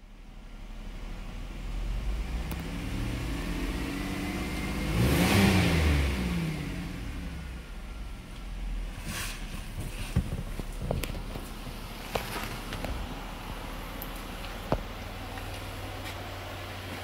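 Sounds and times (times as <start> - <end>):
car engine revving: 0.7 - 17.0.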